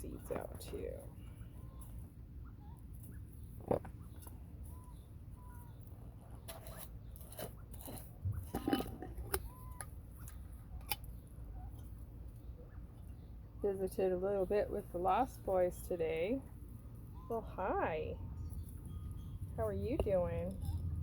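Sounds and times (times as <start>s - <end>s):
quail soft peeps: 0.3s - 8.5s, 9.2s - 13.3s.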